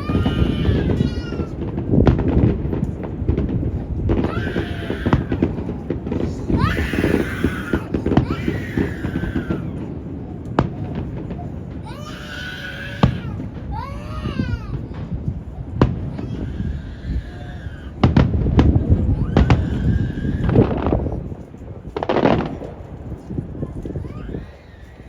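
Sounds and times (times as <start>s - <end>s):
firework bangs: 0.0s - 25.0s
wind buffeting microphone: 0.0s - 25.0s
spectators calling out excitedly: 4.2s - 9.8s.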